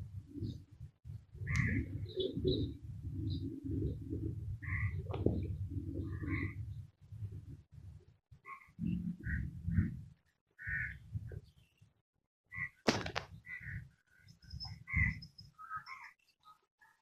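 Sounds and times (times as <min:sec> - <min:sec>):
faint high bird chirps: 0:14.1 - 0:17.0.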